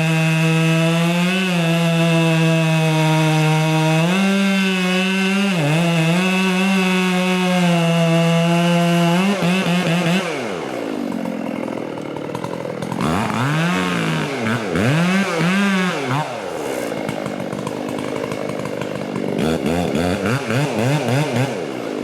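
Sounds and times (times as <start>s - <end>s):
chainsaw cutting wood: 0.0s - 22.0s.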